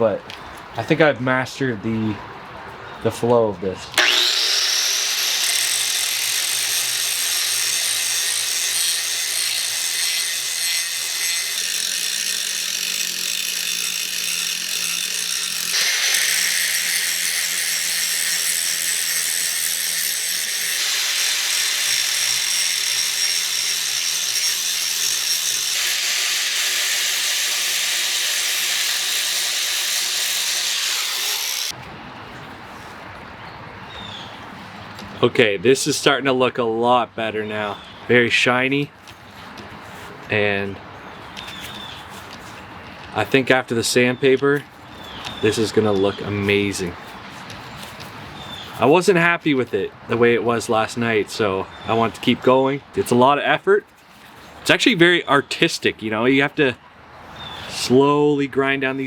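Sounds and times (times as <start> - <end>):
grinder grinding metal: 4.0 - 31.7.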